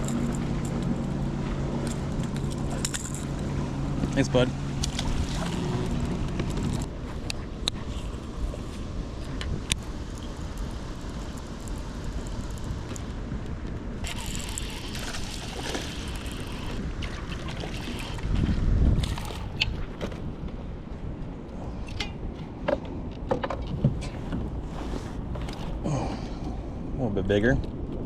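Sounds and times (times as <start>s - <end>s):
water lapping around kayak: 0.0s - 13.1s, 14.0s - 20.8s
wind on microphone: 0.0s - 22.3s.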